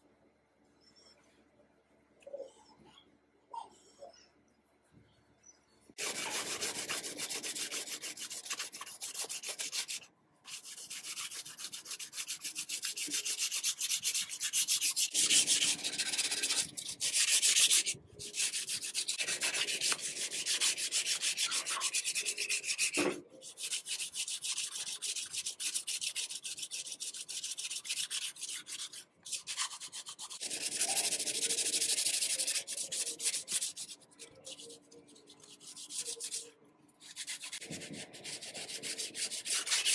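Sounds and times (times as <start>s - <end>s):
sanding rusty metal: 6.0s - 34.8s.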